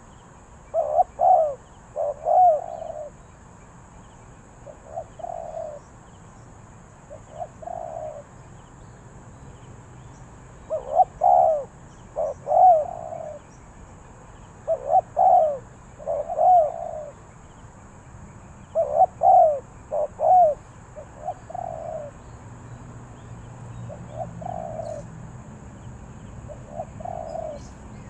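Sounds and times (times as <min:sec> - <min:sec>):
dove cooing: 0:00.7 - 0:03.2, 0:04.6 - 0:05.9, 0:07.1 - 0:08.3, 0:10.6 - 0:13.5, 0:14.6 - 0:17.2, 0:18.6 - 0:22.2, 0:23.9 - 0:25.1, 0:26.4 - 0:27.8.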